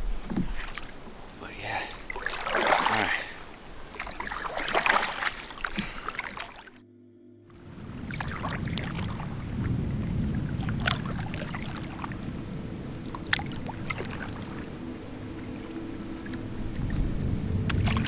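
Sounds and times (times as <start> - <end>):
kayak paddle splashes and knocks: 0.0 - 1.3, 1.9 - 6.7, 17.6 - 18.0
thunder rumbling: 7.5 - 18.0.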